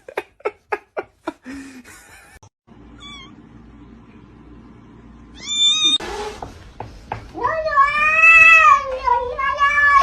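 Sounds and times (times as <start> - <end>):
cat meowing: 3.0 - 3.4, 5.4 - 6.0.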